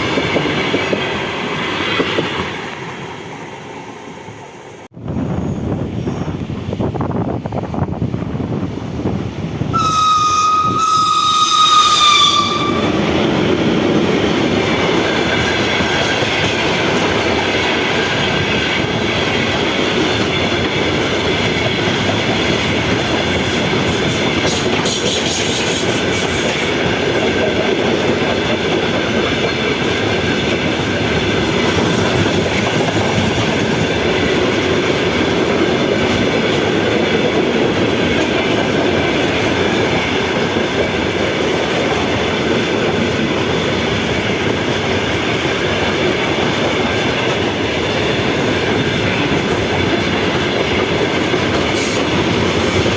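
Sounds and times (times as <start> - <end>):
train rumbling past: 0.0 - 52.9
high train whistle: 9.7 - 13.1.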